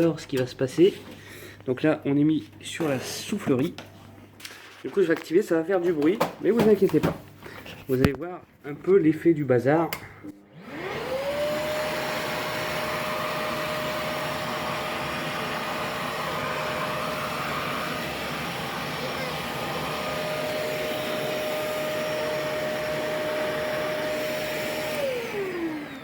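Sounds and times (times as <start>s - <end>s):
vacuum cleaner blowing air: 10.5s - 26.0s.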